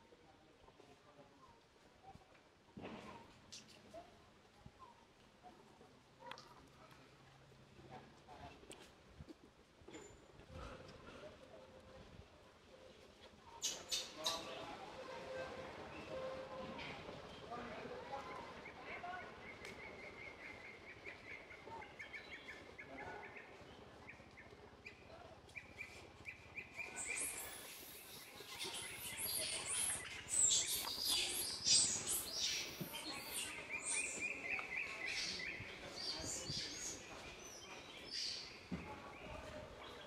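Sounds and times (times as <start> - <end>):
birds chirping: 18.2 - 40.0.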